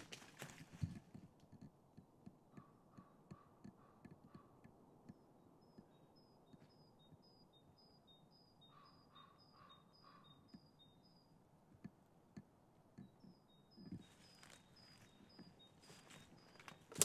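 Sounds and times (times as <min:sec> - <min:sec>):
footsteps on forest floor: 0:00.0 - 0:01.1, 0:14.0 - 0:17.0
branches rustling: 0:00.0 - 0:01.4, 0:14.0 - 0:17.0.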